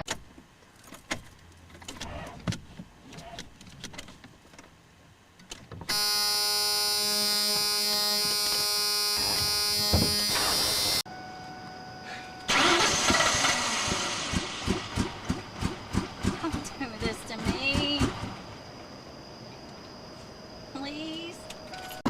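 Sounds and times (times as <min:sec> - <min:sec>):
loud steady pitched tone: 0:05.9 - 0:15.9
car engine cranking: 0:12.4 - 0:18.6.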